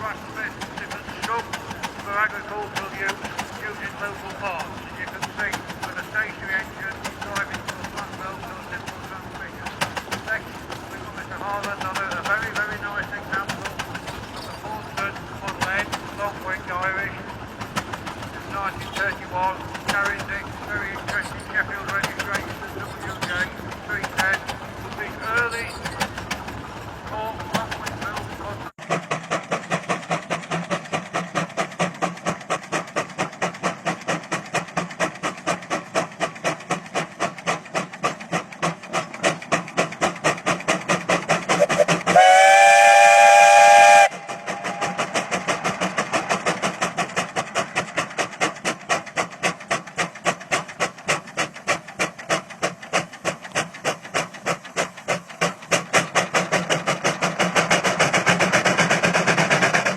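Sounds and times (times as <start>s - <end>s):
steam engine chuffing: 0.0s - 59.9s
steam engine chime whistle: 41.6s - 45.0s.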